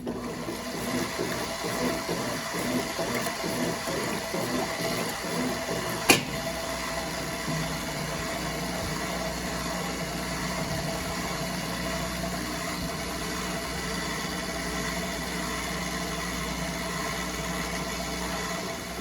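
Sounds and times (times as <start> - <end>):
washing machine motor hum: 0.0 - 19.0.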